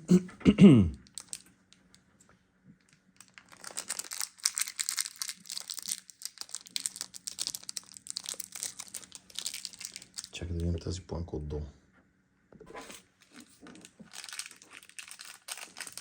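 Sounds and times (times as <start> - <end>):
packaging crinkling: 1.0 - 2.0, 2.8 - 10.6, 12.8 - 16.0.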